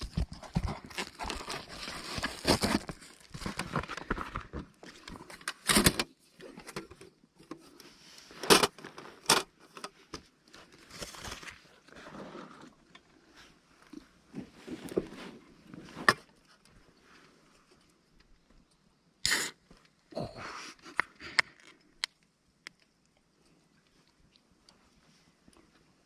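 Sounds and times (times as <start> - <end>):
rustling and crinkling: 0.0 - 18.7.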